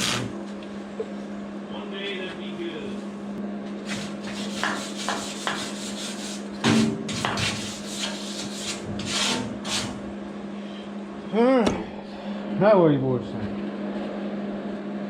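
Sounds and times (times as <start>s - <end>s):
steady low hum: 0.0s - 15.0s
hand scraping on metal: 7.1s - 10.0s.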